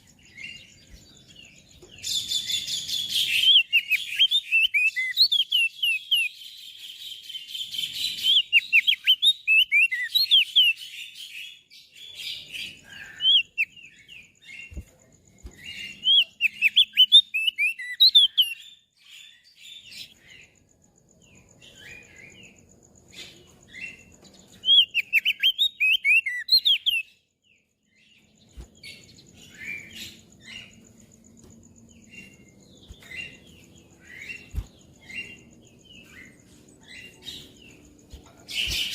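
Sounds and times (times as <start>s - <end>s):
bird chirping and twittering: 0.0s - 38.9s.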